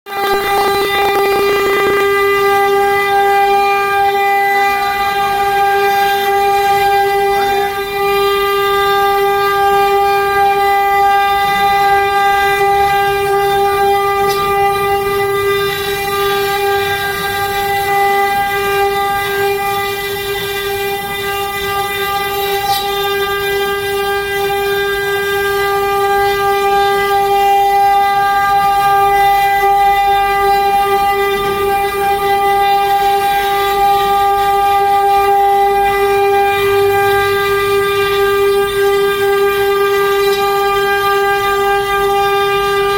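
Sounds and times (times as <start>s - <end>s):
router spindle whining: 0.1s - 3.1s.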